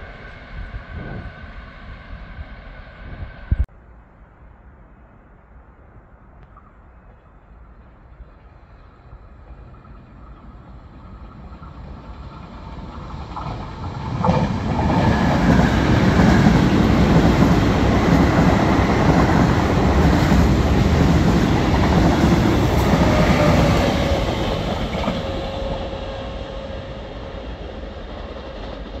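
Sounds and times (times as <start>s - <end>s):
train wheels rumbling on rails: 7.9s - 29.0s.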